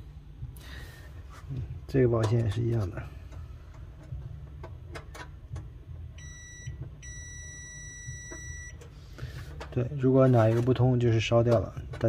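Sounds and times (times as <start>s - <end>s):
multimeter continuity beep: 6.2s - 8.8s.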